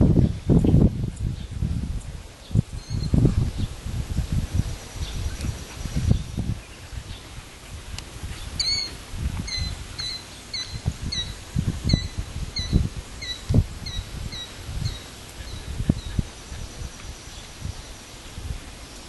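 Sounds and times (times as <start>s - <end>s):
bird chirping: 8.4s - 19.0s.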